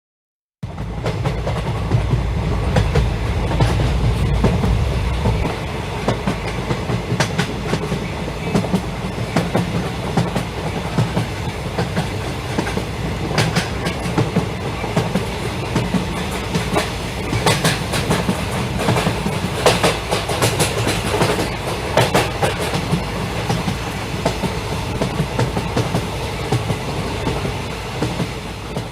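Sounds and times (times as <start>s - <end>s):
low hum: 1.9s - 6.8s.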